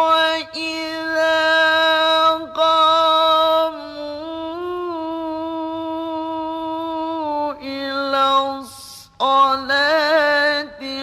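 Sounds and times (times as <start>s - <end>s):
man chanting recitation: 0.0s - 11.0s.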